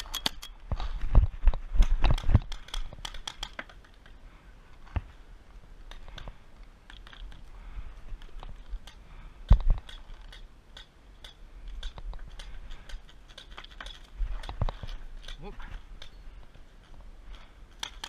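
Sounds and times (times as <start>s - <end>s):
paintball markers firing: 2.0s - 4.0s, 8.7s - 16.2s.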